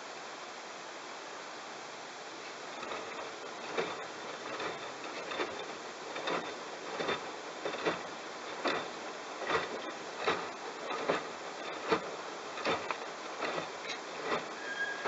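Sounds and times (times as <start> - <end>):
wet load sloshing: 2.5 - 15.0
washing machine drum tumbling: 2.7 - 14.6.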